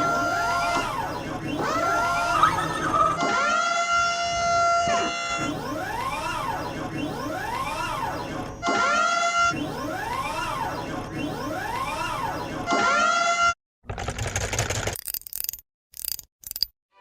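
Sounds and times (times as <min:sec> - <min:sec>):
cartoon siren wailing: 0:00.0 - 0:13.5.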